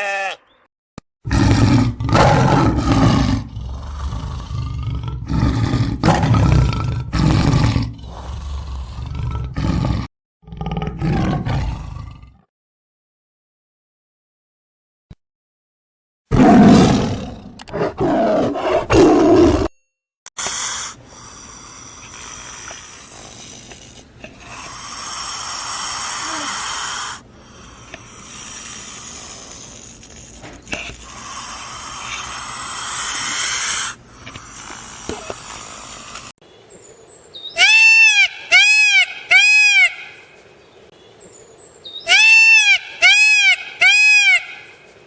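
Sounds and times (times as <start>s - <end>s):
large animal roaring: 1.3s - 12.5s, 16.3s - 19.7s.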